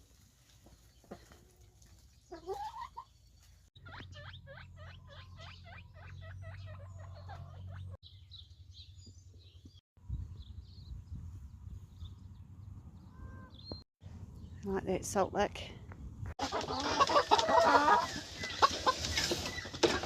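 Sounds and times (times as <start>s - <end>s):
high chirping: 3.8s - 9.7s.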